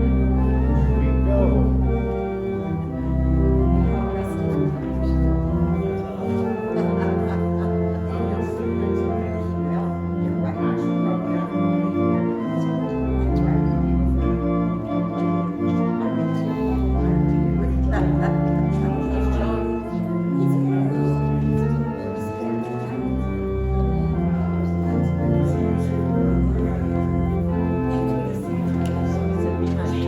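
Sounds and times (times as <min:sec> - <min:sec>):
organ music: 0:00.0 - 0:30.0.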